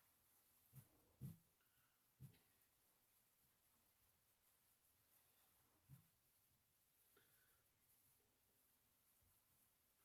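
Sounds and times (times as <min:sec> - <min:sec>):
soft thuds of hands pressing: 0:00.7 - 0:02.7.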